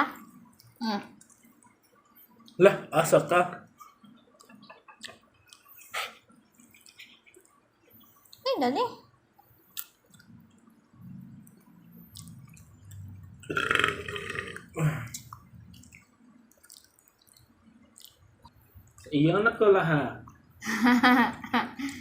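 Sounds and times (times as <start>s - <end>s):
person burping: 13.4s - 15.2s.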